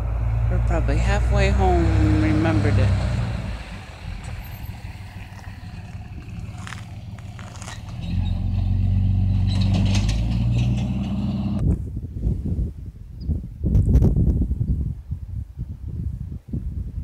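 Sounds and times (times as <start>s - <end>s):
vehicle engine humming: 0.0s - 11.7s.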